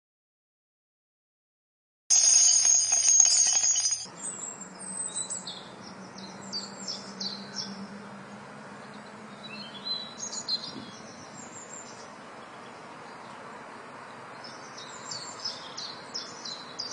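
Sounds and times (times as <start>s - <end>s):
songbirds chirping: 4.1s - 16.9s.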